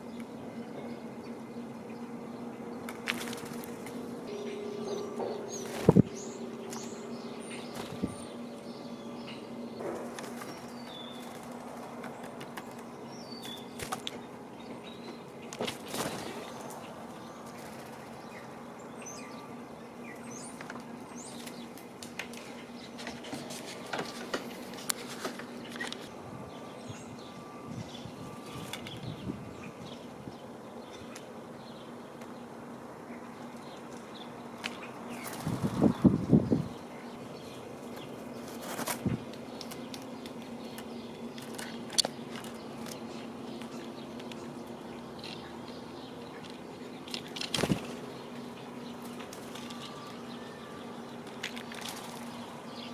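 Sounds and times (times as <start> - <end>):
small birds chirping faintly: 0.0 - 52.9
steady low hum: 0.0 - 52.9
bird wingbeats: 2.8 - 4.2, 7.6 - 8.3, 9.9 - 12.8, 13.4 - 14.2, 15.5 - 18.4, 34.6 - 36.7, 37.9 - 43.0, 47.0 - 50.3, 51.2 - 52.8.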